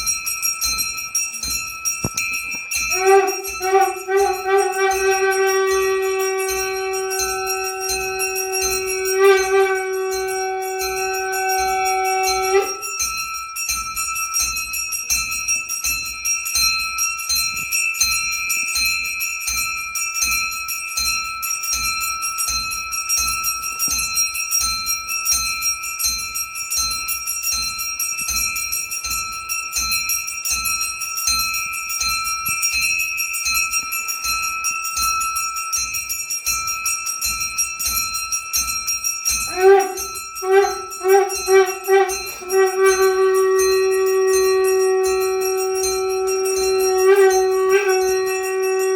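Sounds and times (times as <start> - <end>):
hand bell ringing rapidly: 0.0 - 24.2, 26.2 - 48.9
conch shell blowing: 2.9 - 13.1, 39.5 - 48.9.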